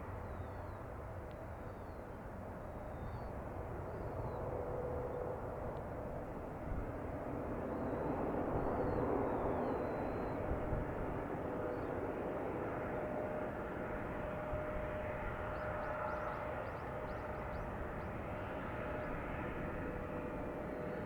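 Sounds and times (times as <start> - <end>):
faint jet engine whine: 0.0 - 21.0.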